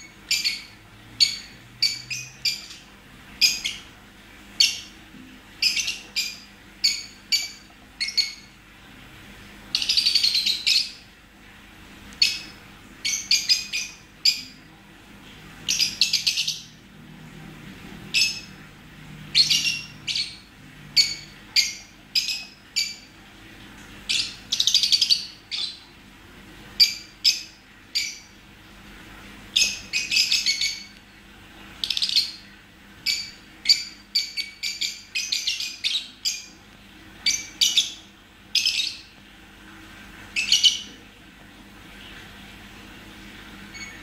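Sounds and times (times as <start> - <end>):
lovebird chirping: 0.0 - 3.9, 4.6 - 5.0, 5.6 - 8.6, 9.7 - 11.0, 12.2 - 14.6, 15.7 - 16.8, 19.3 - 23.1, 24.1 - 25.8, 26.8 - 28.4, 29.6 - 31.0, 31.8 - 32.4, 33.0 - 36.6, 37.2 - 39.1, 40.4 - 40.9, 43.7 - 44.0.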